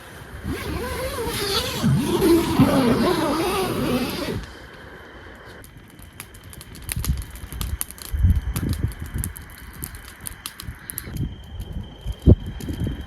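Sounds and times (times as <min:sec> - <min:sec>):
wind gusting against microphone: 0:00.0 - 0:04.6
small sharp ticks and crackles: 0:05.6 - 0:13.0.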